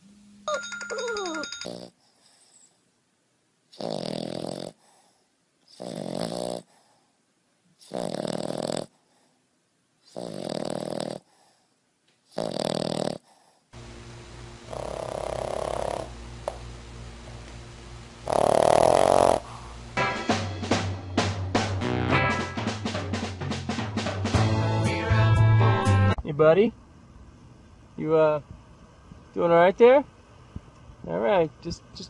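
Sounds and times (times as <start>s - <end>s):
dog snoring: 1.6s - 2.7s, 3.7s - 7.0s, 7.8s - 9.0s, 10.1s - 11.6s, 12.3s - 13.6s, 14.6s - 16.2s, 18.2s - 19.8s
steady low hum: 13.8s - 22.0s, 26.1s - 32.0s.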